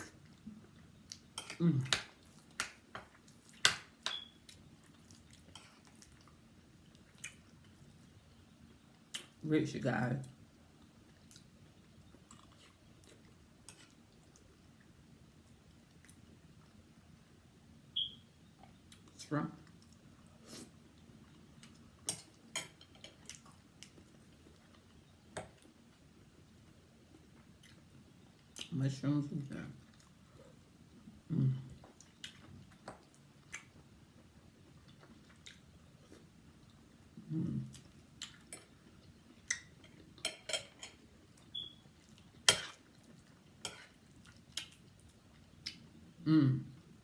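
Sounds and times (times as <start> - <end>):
cutlery clinking on a plate: 40.2 - 41.0.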